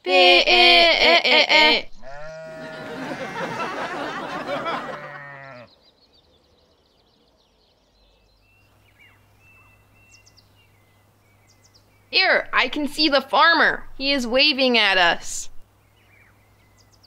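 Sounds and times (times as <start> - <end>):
sheep bleating: 2.0 - 3.4, 4.6 - 5.7
faint bird chirps: 5.5 - 12.2.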